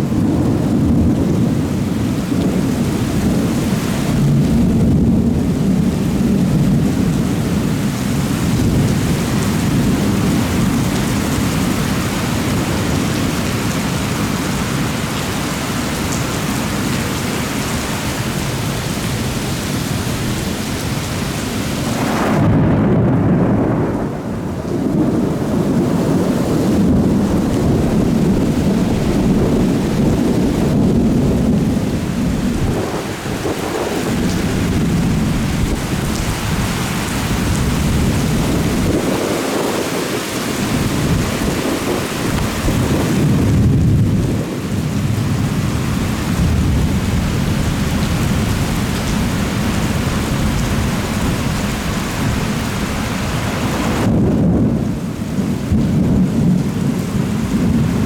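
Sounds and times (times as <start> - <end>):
heavy rain falling: 0.0 - 58.0
rolling thunder: 0.0 - 58.0.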